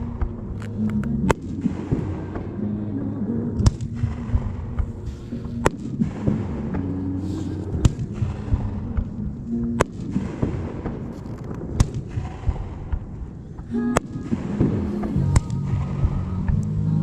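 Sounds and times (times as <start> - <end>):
fireworks bangs: 0.0 - 2.6, 3.6 - 16.5
background music: 0.0 - 17.0
fireworks crackle: 3.8 - 16.3.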